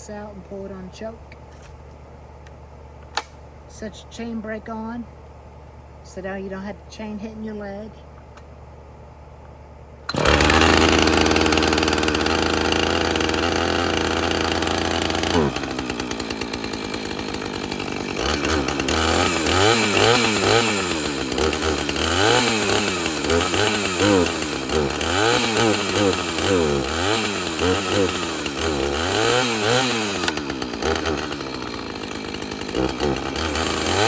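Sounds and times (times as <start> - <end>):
chainsaw engine idling and revving: 10.1 - 34.0.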